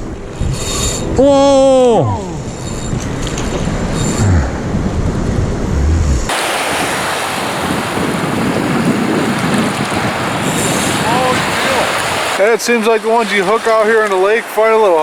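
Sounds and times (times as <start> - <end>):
wind buffeting microphone: 0.0 - 12.4
water washing at shore: 6.3 - 15.0.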